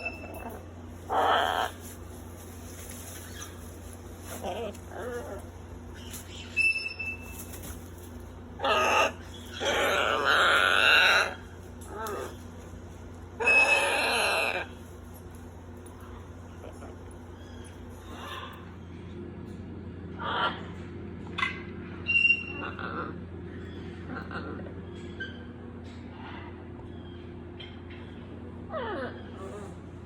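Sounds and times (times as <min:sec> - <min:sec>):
parrots squawking: 0:00.0 - 0:02.0, 0:02.8 - 0:07.2, 0:08.6 - 0:12.5, 0:13.4 - 0:14.8, 0:16.1 - 0:18.7, 0:20.2 - 0:20.7.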